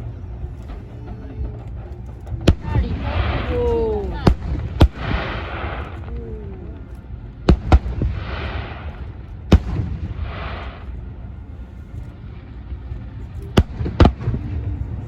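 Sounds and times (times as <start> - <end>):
firework crackling: 0.0 - 15.0
steady low rumble: 0.0 - 15.0
firework shells booming: 2.4 - 11.0.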